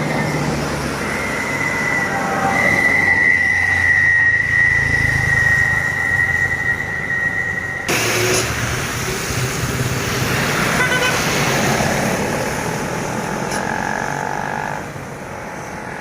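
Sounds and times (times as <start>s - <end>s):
high-pitched squeal: 0.0s - 12.2s
diesel truck engine rumbling: 0.0s - 16.0s.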